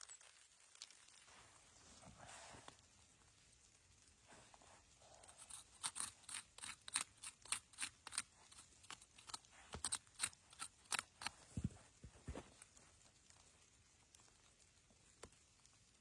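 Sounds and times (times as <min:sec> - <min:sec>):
crisp snipping clicks: 0:05.4 - 0:11.4.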